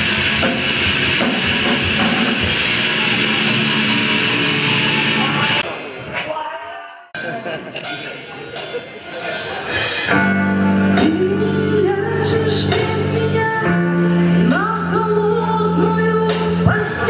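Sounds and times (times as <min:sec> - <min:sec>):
guitar chords: 0:00.0 - 0:06.0, 0:10.1 - 0:17.0
drums: 0:00.0 - 0:17.0
person singing: 0:10.8 - 0:17.0.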